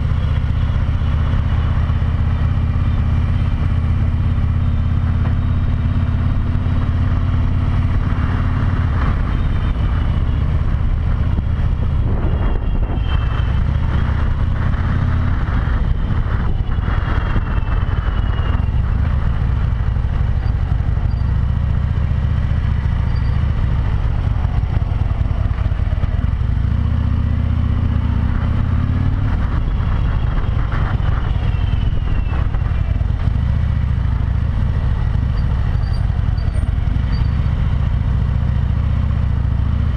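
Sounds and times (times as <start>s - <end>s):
motorcycle engine running: 0.0s - 39.9s
wind rush: 7.8s - 21.0s, 23.6s - 35.2s.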